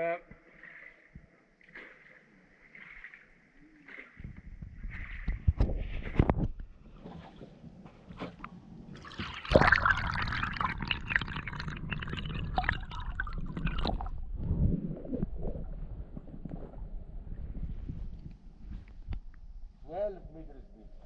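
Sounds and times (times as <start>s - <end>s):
water splashing and gurgling: 0.4s - 18.0s.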